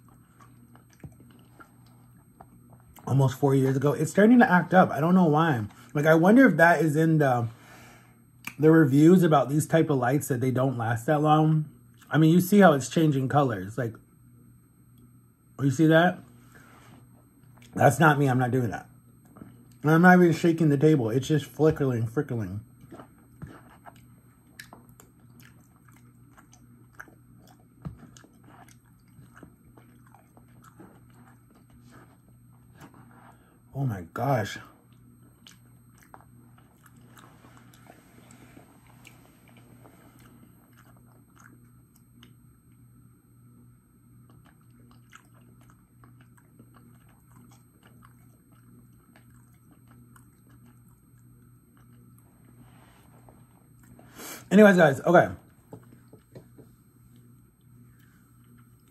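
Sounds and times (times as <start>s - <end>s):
chewing soft food: 0.0s - 3.9s, 16.3s - 17.8s, 19.0s - 20.2s, 20.8s - 54.5s, 55.4s - 58.9s
faint steady hum: 0.0s - 58.9s.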